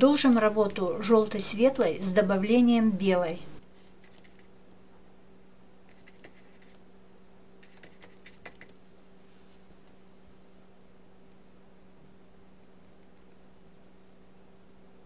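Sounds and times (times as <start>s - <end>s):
steady low hum: 0.0s - 15.0s
paintbrush scratching and tapping: 3.9s - 4.6s, 5.9s - 6.9s, 7.6s - 8.8s, 12.6s - 14.4s.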